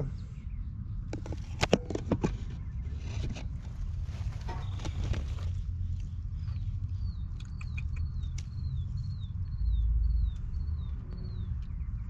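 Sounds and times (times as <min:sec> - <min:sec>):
bird chirping: 0:04.3 - 0:12.0
sharp clicks: 0:07.4 - 0:08.6.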